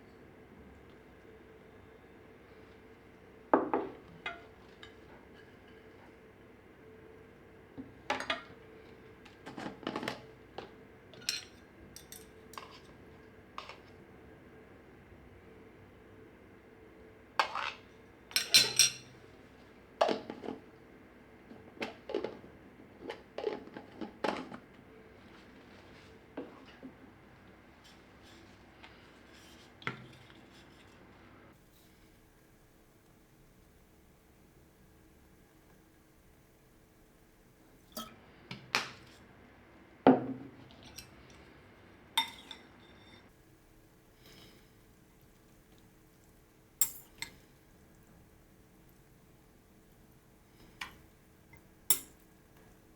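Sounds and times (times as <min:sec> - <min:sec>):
utensils clinking against dishes: 0:11.2 - 0:13.0, 0:17.4 - 0:19.2, 0:37.9 - 0:38.2, 0:42.2 - 0:43.3, 0:46.8 - 0:47.4.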